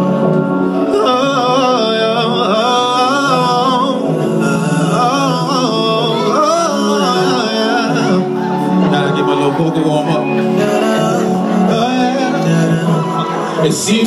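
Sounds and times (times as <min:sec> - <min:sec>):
backing track low chords: 0:00.0 - 0:14.0.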